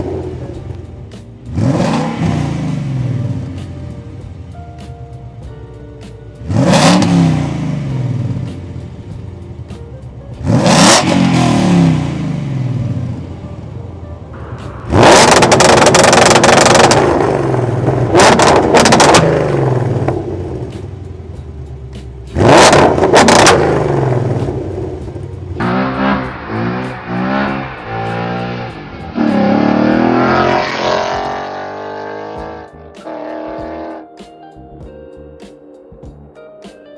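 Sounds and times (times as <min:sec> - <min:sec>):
car engine revving: 0:00.0 - 0:00.9, 0:01.5 - 0:04.6, 0:06.4 - 0:09.7, 0:10.4 - 0:34.0
exhaust crackles: 0:10.4 - 0:32.6.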